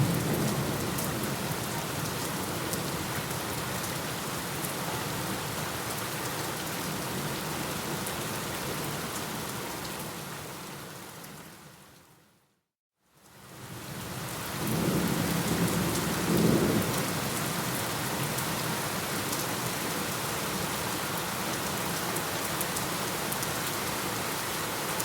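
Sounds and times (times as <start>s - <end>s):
steady rain: 0.0s - 12.4s, 13.0s - 25.0s.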